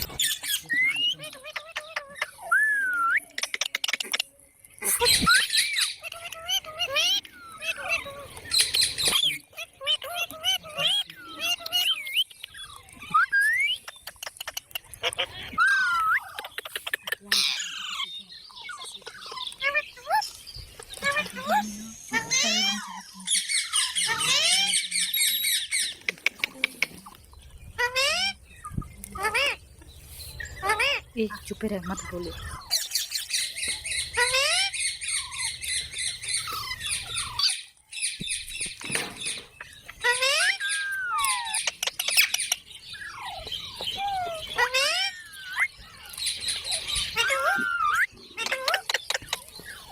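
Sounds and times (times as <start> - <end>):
parrots squawking: 0.0 - 29.6, 30.3 - 49.9
parrot clicking: 13.8 - 15.2
parrot squawk: 21.0 - 25.8, 27.8 - 28.4, 34.2 - 37.7, 39.9 - 45.9, 46.6 - 49.1.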